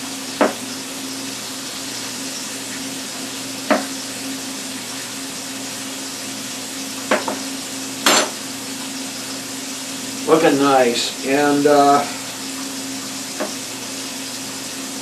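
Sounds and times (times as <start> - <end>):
food sizzling in a pan: 0.0 - 15.0
knife knocking on cutting board: 0.4 - 0.6, 3.7 - 3.9, 7.1 - 7.5.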